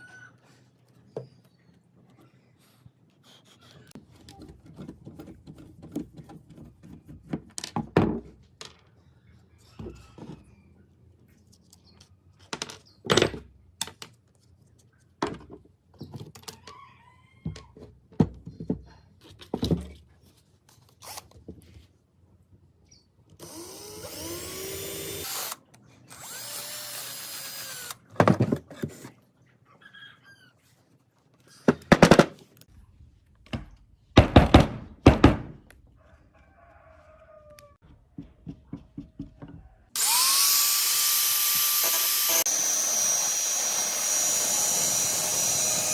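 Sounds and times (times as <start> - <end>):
power drill running: 23.4 - 28.0, 40.0 - 45.9
power tool spinning up: 23.4 - 28.0, 40.0 - 45.9.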